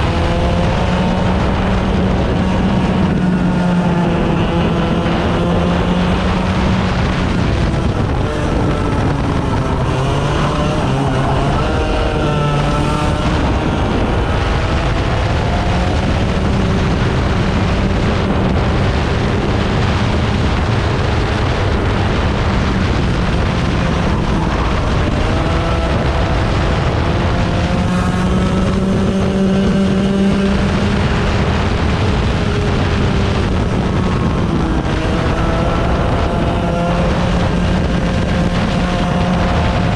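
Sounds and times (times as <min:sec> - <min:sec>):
racing engine accelerating: 0:00.0 - 0:39.9
wind rush: 0:00.0 - 0:39.9.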